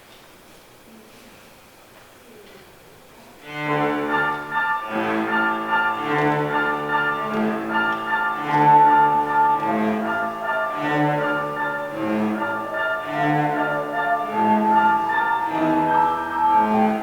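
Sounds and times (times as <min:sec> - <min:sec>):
string ensemble playing a waltz: 0:03.4 - 0:17.0.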